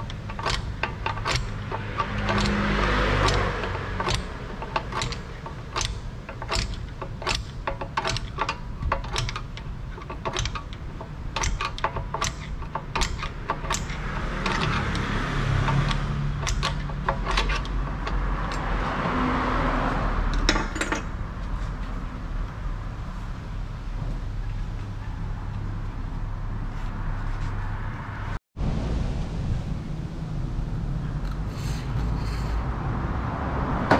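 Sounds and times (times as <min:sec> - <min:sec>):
metallic clicks and clinks: 0:00.0 - 0:18.9, 0:20.3 - 0:21.2.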